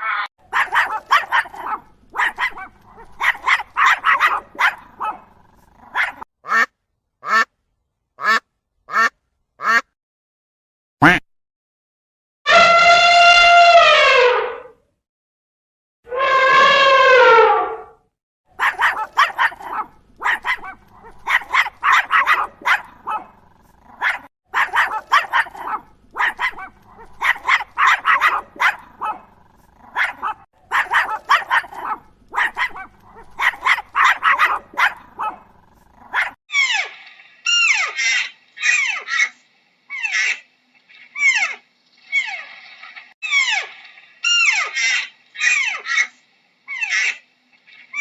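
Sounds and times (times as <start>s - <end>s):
dog barking: 0.4s - 6.2s, 18.6s - 36.4s.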